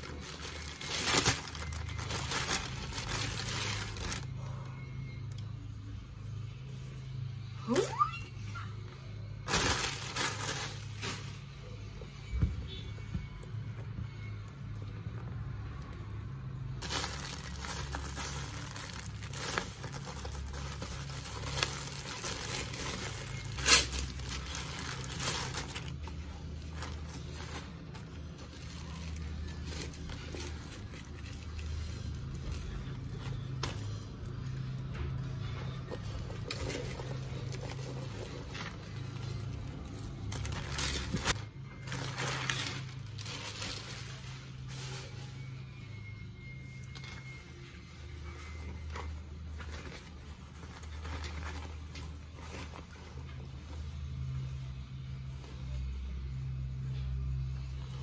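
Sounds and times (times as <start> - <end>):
plastic bag crinkling: 0.0 - 4.6, 9.4 - 11.4, 16.8 - 34.4, 36.0 - 45.3.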